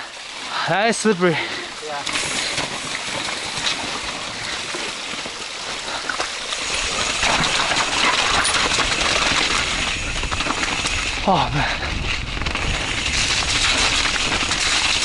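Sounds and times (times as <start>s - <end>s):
bike rattling: 0.0s - 15.0s
tyres on mud: 0.5s - 15.0s
wind on microphone: 9.5s - 14.6s.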